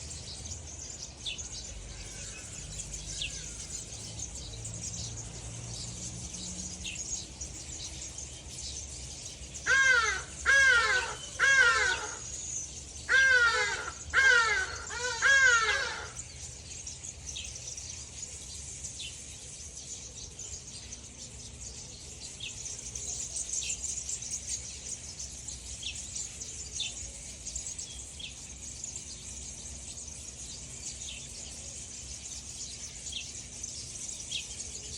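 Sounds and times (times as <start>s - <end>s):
high insect chorus: 0.0s - 34.9s
small birds chirping: 0.0s - 34.9s
crow cawing: 9.7s - 12.4s, 13.1s - 16.2s.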